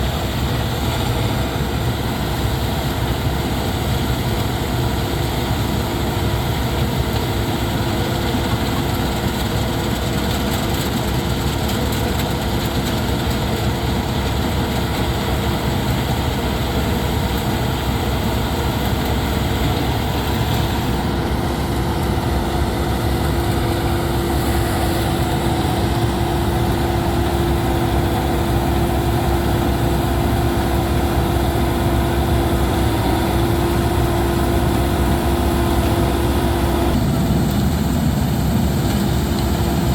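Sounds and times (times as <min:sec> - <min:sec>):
combine harvester droning: 0:00.0 - 0:39.9
steady hum: 0:15.2 - 0:39.9.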